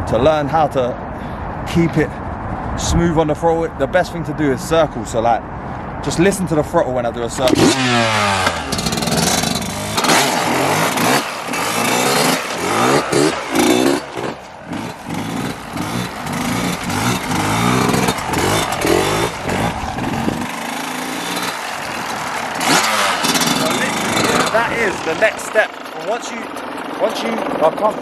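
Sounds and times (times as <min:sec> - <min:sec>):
dirt bike engine revving: 0:07.4 - 0:27.6.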